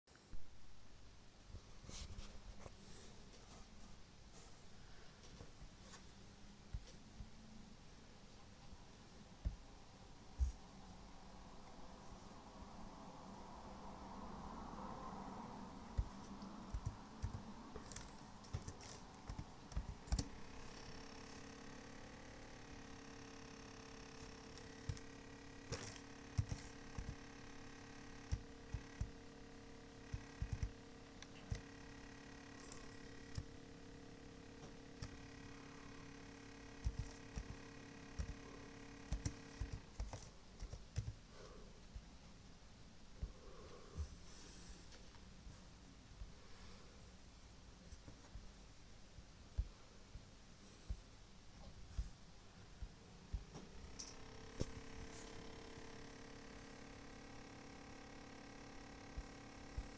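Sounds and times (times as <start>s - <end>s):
faint steady hum: 0.1s - 59.9s
laptop clicks and rattle: 15.9s - 41.2s, 53.3s - 59.9s.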